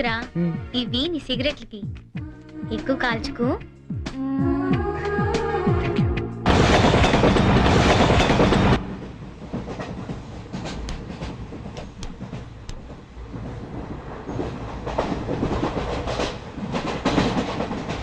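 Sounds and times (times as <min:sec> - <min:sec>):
loud train noise: 0:06.4 - 0:18.0
train wheels clacking over rail joints: 0:06.5 - 0:18.0.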